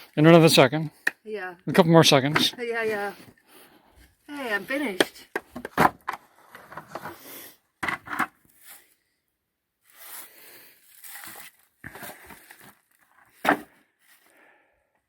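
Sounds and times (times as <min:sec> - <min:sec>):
rustling and scraping handling noise: 0:02.1 - 0:03.4, 0:04.0 - 0:09.0, 0:09.8 - 0:14.3.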